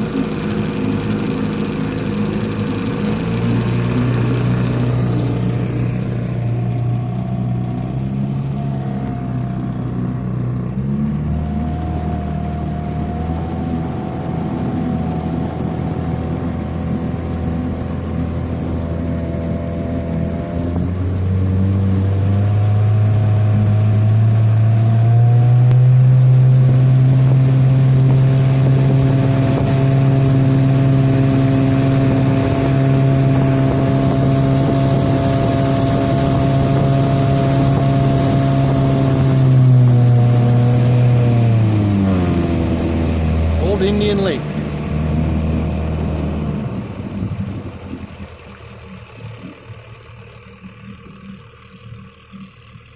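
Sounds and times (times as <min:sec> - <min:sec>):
boat motor running: 0:00.0 - 0:52.9.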